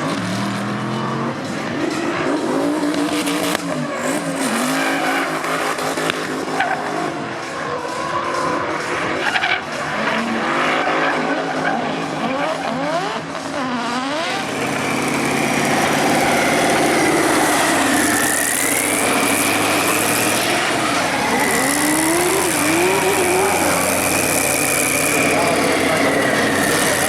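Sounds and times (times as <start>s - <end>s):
car engine revving: 0.0s - 27.0s
tyres squealing: 7.9s - 27.0s.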